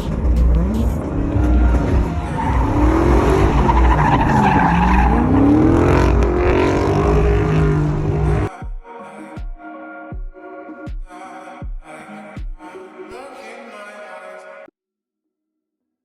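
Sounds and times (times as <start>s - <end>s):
car engine revving: 0.0s - 8.5s.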